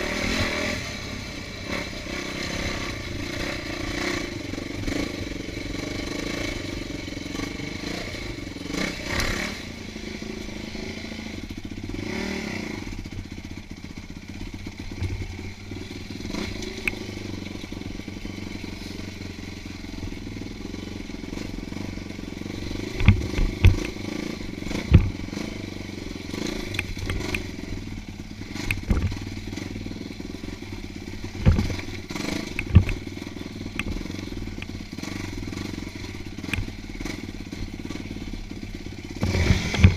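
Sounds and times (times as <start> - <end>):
off-road motorcycle engine: 0.0 - 39.9
loud sharp thumps: 24.7 - 25.2, 28.7 - 29.3, 31.4 - 31.9, 32.6 - 33.0.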